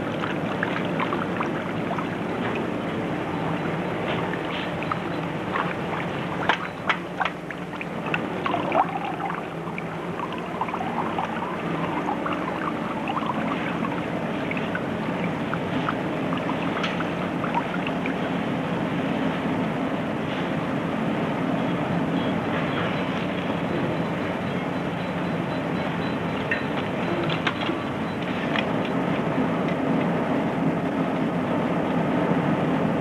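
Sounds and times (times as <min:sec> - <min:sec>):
factory machinery humming: 0:00.0 - 0:31.8.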